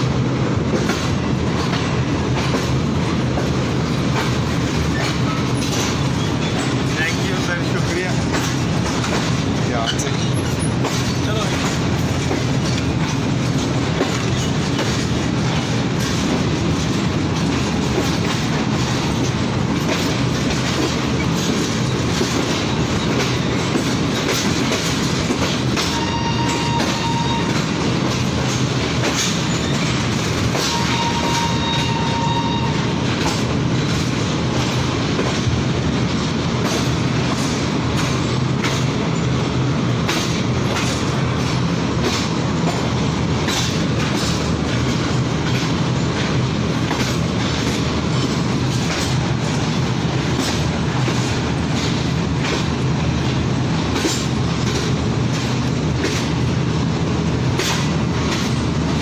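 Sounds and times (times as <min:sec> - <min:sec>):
train rumble with low hum: 0:00.0 - 0:59.0
wheels clicking over rail joints: 0:00.7 - 0:39.4, 0:40.0 - 0:56.4, 0:57.4 - 0:59.0.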